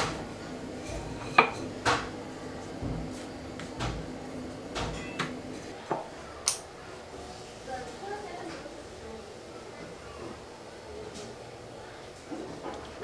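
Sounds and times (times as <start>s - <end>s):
utensils and dishes clacking: 0.0s - 2.2s, 4.7s - 6.7s.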